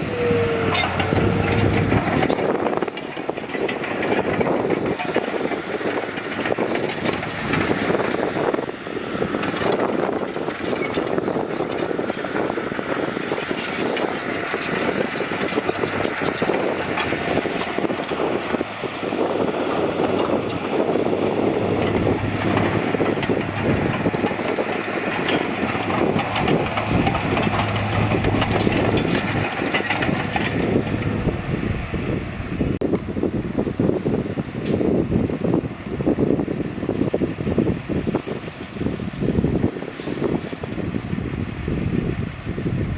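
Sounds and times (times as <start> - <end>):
dense rattle and clatter: 0.0 - 32.8
heavy diesel machinery running: 0.0 - 42.9.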